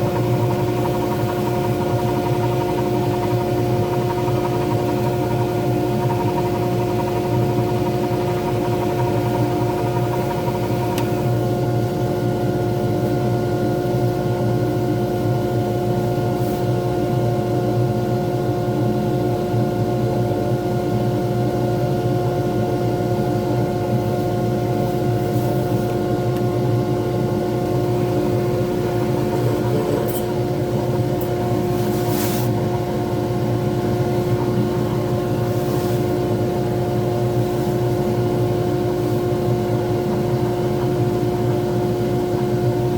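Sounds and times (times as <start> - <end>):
lathe motor hum: 0.0 - 11.4, 26.8 - 32.0, 32.6 - 42.5.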